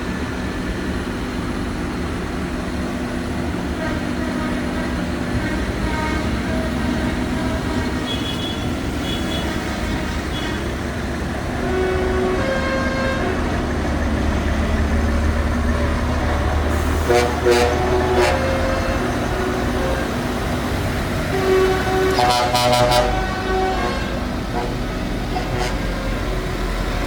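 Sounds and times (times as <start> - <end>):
tractor engines rumbling: 0.0 - 27.0
short horn toots: 16.8 - 18.9.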